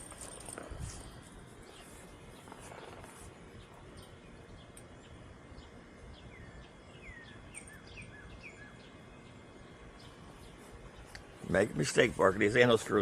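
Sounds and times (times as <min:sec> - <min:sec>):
bird chirping: 0:00.0 - 0:13.0
outdoor background noise: 0:00.0 - 0:13.0.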